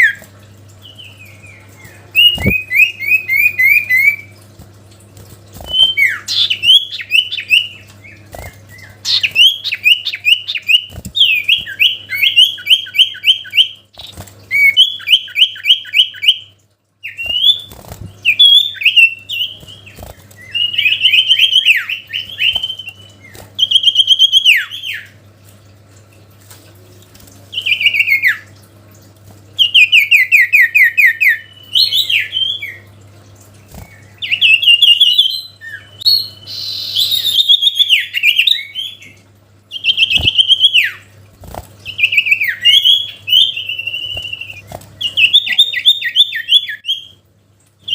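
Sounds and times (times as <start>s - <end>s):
bird singing fast chirping notes: 0.8s - 4.4s, 5.6s - 25.1s, 39.7s - 41.1s, 41.8s - 47.2s.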